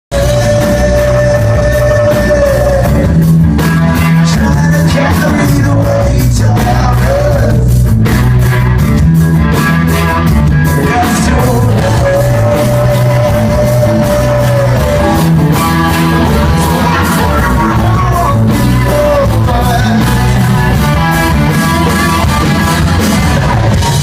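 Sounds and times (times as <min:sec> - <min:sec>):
rock band playing live: 0:00.1 - 0:24.0.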